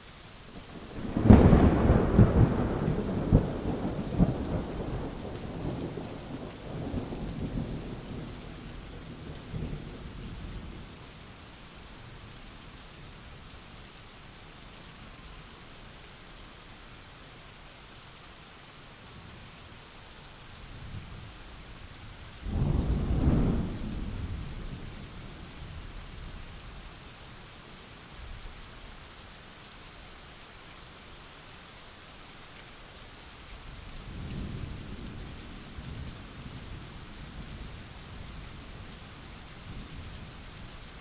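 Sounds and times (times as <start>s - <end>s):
rain hissing: 0.0s - 41.0s
soft roll of thunder: 0.7s - 10.9s, 22.4s - 26.4s, 34.0s - 40.5s
thunderclap and rumble: 22.5s - 25.8s.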